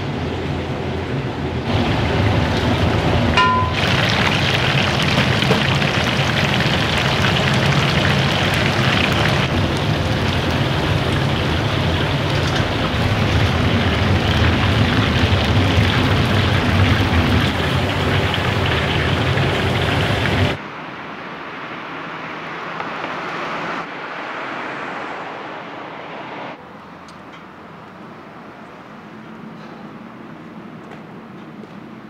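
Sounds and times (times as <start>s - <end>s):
food sizzling in hot oil: 3.4s - 20.6s.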